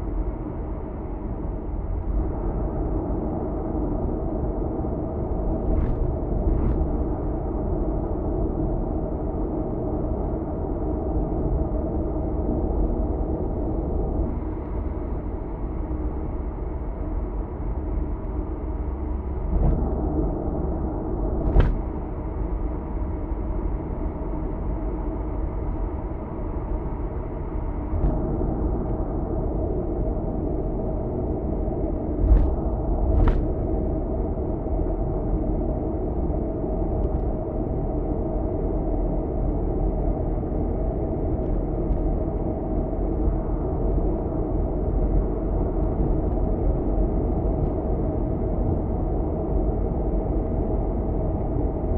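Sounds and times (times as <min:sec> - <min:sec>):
car engine noise: 0:05.3 - 0:07.9, 0:19.0 - 0:23.1, 0:27.3 - 0:37.4
tyre and road rumble: 0:21.3 - 0:22.1, 0:32.2 - 0:33.7.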